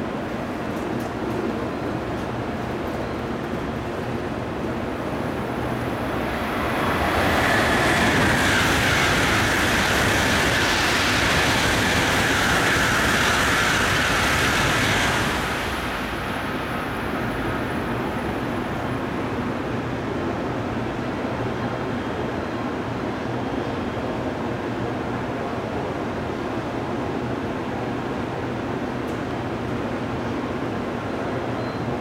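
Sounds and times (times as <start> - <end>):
train passing at speed: 0.0 - 32.0.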